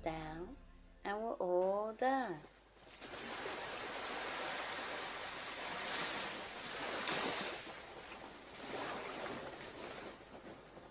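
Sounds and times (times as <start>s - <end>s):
ocean surf washing onto beach: 2.8s - 10.9s.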